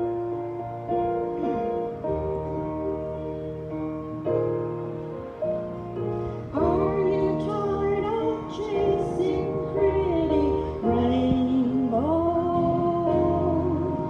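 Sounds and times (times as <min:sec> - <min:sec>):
piano accompaniment: 0:00.0 - 0:14.0
woman singing slow song: 0:06.5 - 0:14.0.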